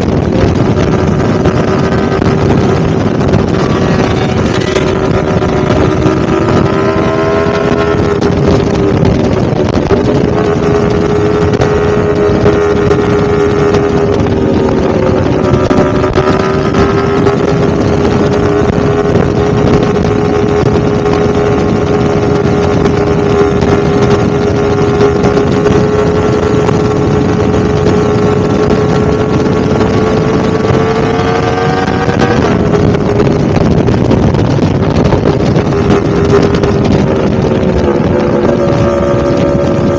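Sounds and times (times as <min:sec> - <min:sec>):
motorcycle engine running high: 0:00.0 - 0:39.9
wind buffeting microphone: 0:00.0 - 0:39.9.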